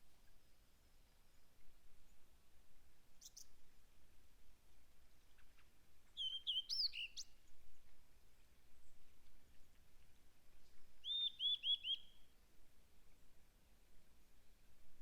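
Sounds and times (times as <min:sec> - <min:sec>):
faint steady hiss: 0:00.0 - 0:15.0
songbirds chirping: 0:04.7 - 0:12.4.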